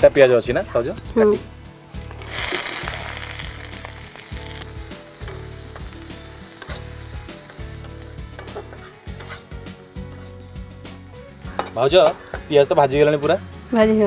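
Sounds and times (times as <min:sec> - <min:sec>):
onions sizzling in hot oil: 0:02.0 - 0:14.0
metal spatula scraping pan: 0:06.6 - 0:10.5.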